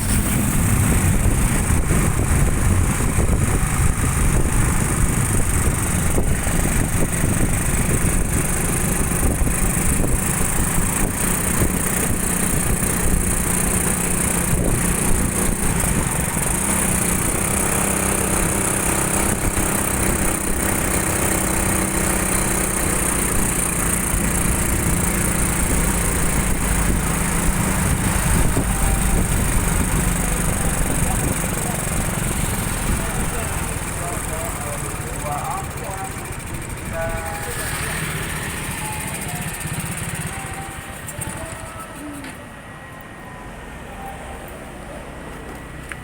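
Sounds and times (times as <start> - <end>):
low wind rumble on microphone: 0.0 - 17.7, 23.3 - 33.1
motorcycle engine running: 0.0 - 42.8.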